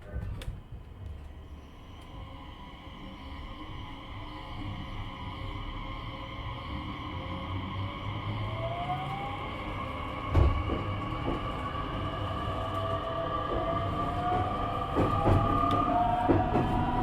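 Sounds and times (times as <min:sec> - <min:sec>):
train running noise: 0:00.0 - 0:17.0.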